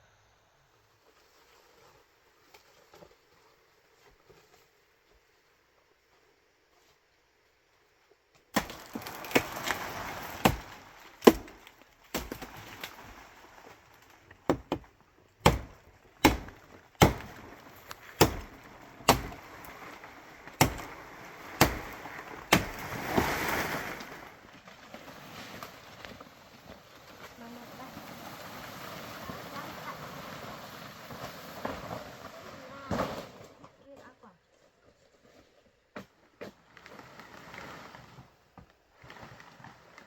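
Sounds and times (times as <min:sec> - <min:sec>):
bamboo being chopped: 0:08.5 - 0:13.1, 0:14.4 - 0:24.1
rasping crack: 0:08.6 - 0:26.3.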